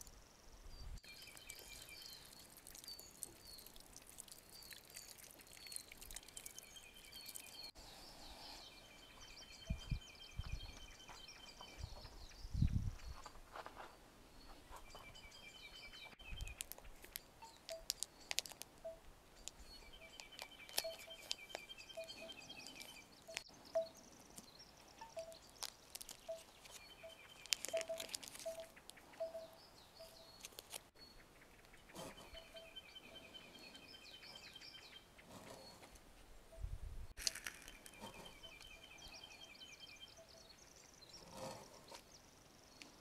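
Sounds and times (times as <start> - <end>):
songbird trilling: 8.6 - 12.8, 14.8 - 35.8, 37.3 - 41.3.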